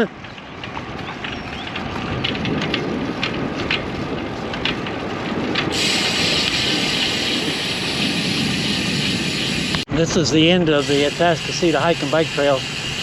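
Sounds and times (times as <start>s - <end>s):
wind rumbling on microphone: 0.0s - 13.0s
steady hiss: 5.8s - 9.9s, 10.8s - 13.0s.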